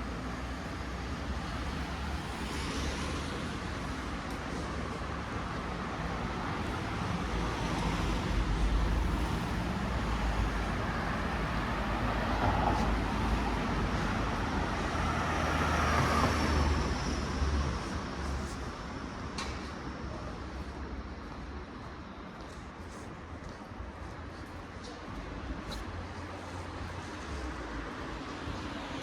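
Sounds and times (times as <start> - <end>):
vehicles passing: 0.0 - 21.8.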